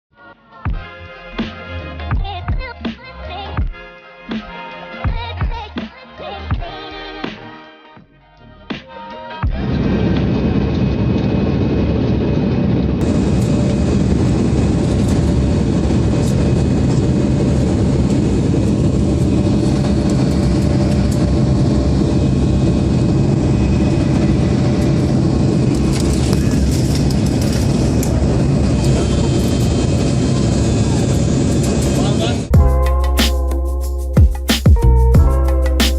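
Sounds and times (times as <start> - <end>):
aircraft engine hum: 9.5 - 33.7
rushing air noise: 9.6 - 35.9.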